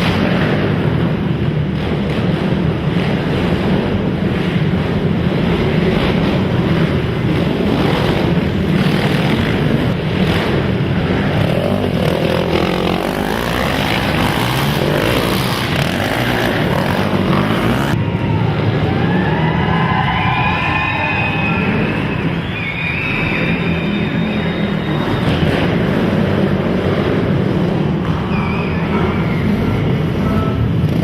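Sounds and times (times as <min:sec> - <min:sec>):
quad engines revving: 0:00.0 - 0:19.8, 0:20.5 - 0:31.0.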